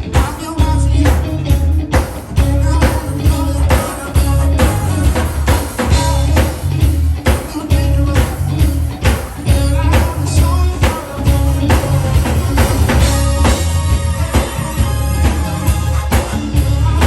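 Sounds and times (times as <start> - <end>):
drum beat: 0.0 - 17.0
guitar: 0.0 - 17.0
heavy bass line: 0.0 - 17.0
keyboards: 0.0 - 17.0
person singing: 0.0 - 17.0.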